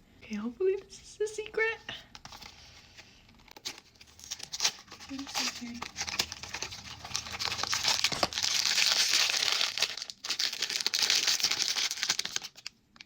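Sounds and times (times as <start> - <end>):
wrapper crumpling and tearing: 3.4 - 13.0.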